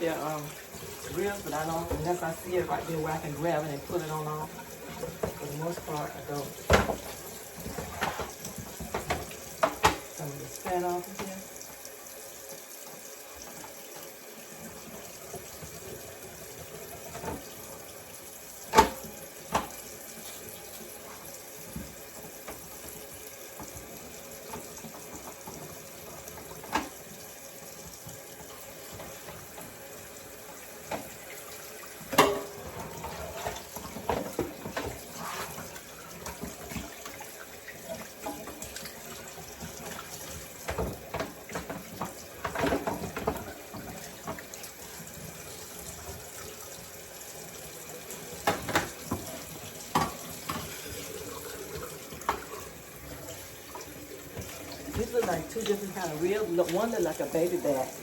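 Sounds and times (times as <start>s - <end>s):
water splashing and clatter: 0.1s - 11.4s, 30.8s - 47.5s, 48.1s - 58.0s
tap running into sink: 0.3s - 11.8s, 18.6s - 57.9s.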